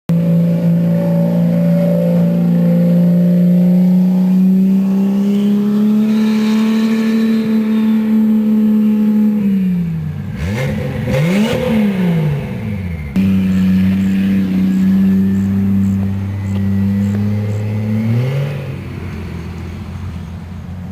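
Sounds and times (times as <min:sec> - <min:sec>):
car engine at high revs: 0:00.1 - 0:20.9
engine throttle blips: 0:00.1 - 0:20.9.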